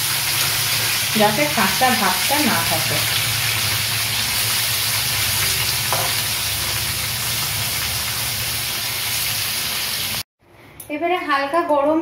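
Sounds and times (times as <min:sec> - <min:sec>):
prawns sizzling in hot oil: 0:00.0 - 0:10.3.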